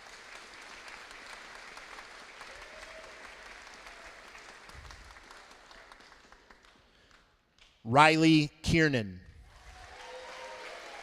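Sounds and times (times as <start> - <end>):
audience applauding: 0.0 - 6.9, 9.5 - 11.0.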